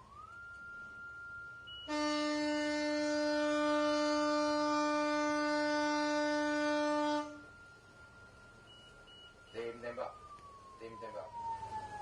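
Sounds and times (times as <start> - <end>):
faint siren tone: 0.0 - 12.0
ship's horn blast: 1.8 - 7.5.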